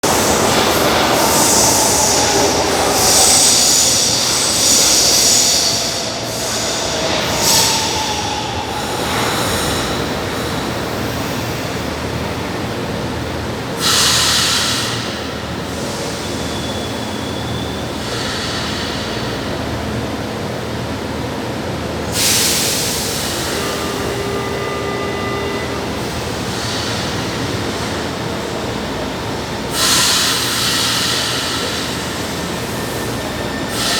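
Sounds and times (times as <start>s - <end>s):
loud hisses: 0.0s - 11.2s, 22.1s - 25.0s
train rumble: 0.0s - 33.9s.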